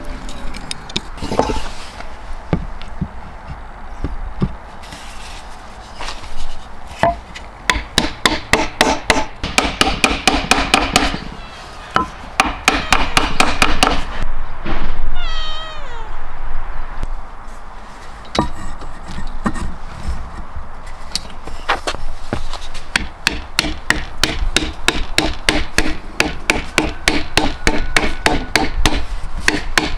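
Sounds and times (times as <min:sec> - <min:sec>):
rapid sharp knocks and taps: 0:07.7 - 0:11.2, 0:22.9 - 0:29.9.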